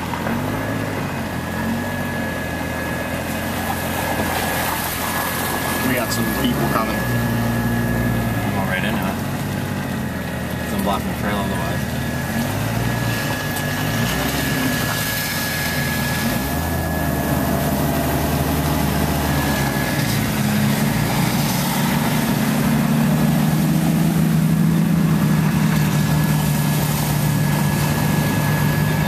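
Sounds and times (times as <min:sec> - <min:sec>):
car engine at low speed: 0:00.0 - 0:29.0.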